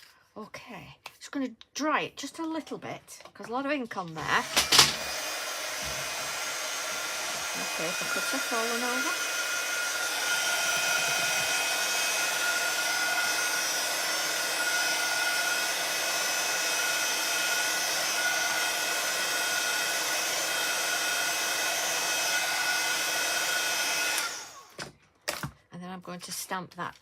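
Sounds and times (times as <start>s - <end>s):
heat tool blowing with motor whine: 4.3s - 24.8s.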